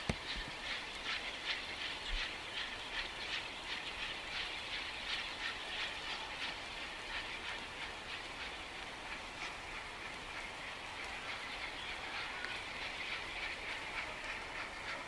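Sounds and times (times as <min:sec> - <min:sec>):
train clacking on rails: 0:00.0 - 0:15.0.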